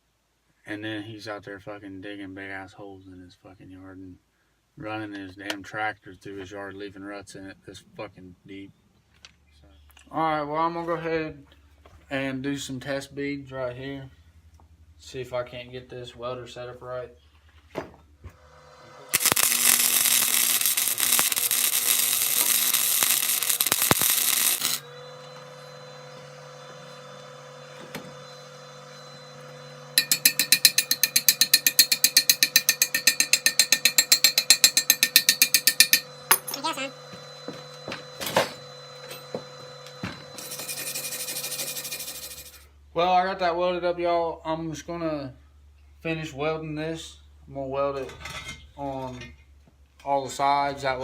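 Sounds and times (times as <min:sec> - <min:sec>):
welder hum: 0:18.2 - 0:42.6
welding arc crackling and popping: 0:19.1 - 0:24.9, 0:30.0 - 0:36.9, 0:40.4 - 0:42.6.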